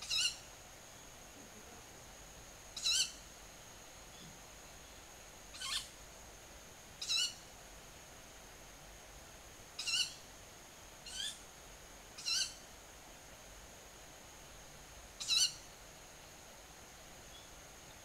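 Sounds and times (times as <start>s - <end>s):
night bird calls: 0.0s - 1.2s, 2.8s - 3.3s, 4.1s - 6.0s, 7.0s - 7.5s, 9.8s - 10.3s, 11.0s - 11.4s, 12.2s - 12.7s, 15.2s - 15.7s.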